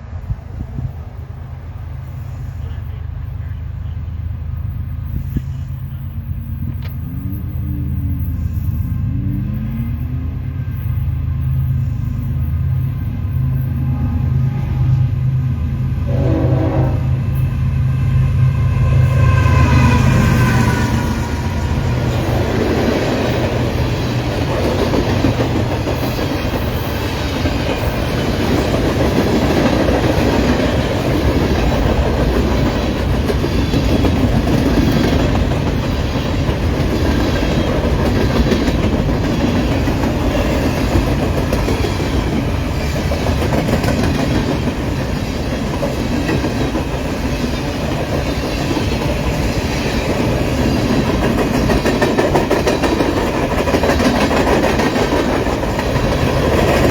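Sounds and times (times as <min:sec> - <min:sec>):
train wheels clicking over rail joints: 0:19.8 - 0:56.9.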